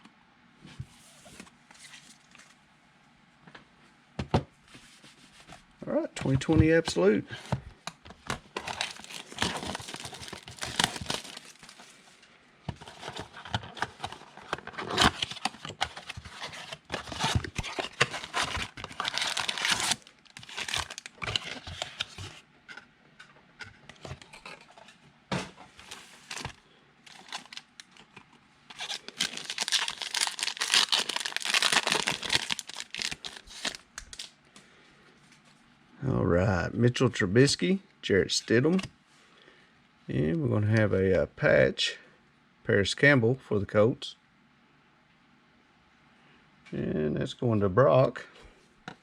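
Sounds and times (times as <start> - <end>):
wrappers tearing and crinkling: 8.5 - 11.9, 12.9 - 22.4, 25.8 - 28.0, 28.7 - 34.4.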